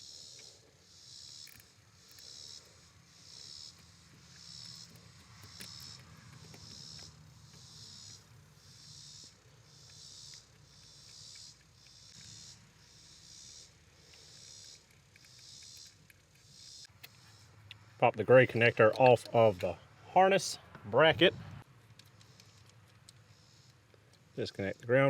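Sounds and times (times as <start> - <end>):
insect buzzing pulse: 0.0 - 14.8.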